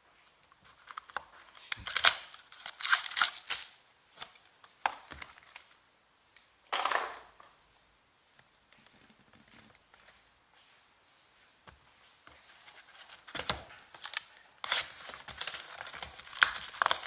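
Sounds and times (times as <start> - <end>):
plastic wrapping tearing and crinkling: 0.4 - 5.8, 12.8 - 17.0.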